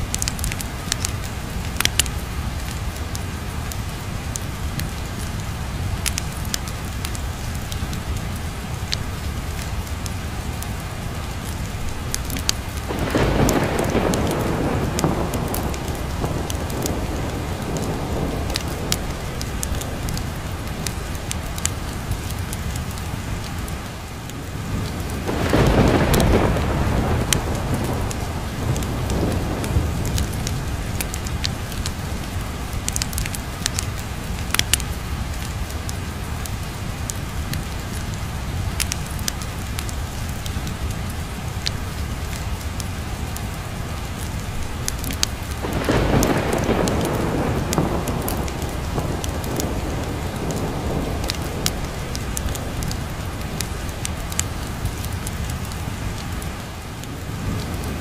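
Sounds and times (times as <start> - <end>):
heavy rain: 0.0 - 58.0
thunder rolling: 12.3 - 21.9, 24.4 - 32.2, 45.6 - 55.1.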